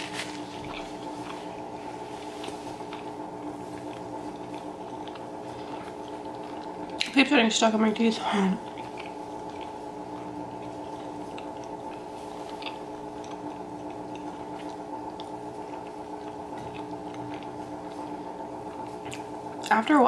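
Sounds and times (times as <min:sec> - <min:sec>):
steady hum: 0:00.0 - 0:20.0
closed-mouth chewing: 0:00.2 - 0:07.2, 0:08.6 - 0:19.7.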